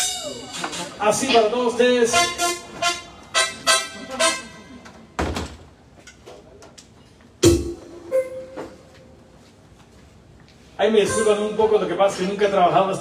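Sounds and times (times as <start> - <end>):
electronic keyboard notes: 7.4 - 9.2, 11.0 - 12.2.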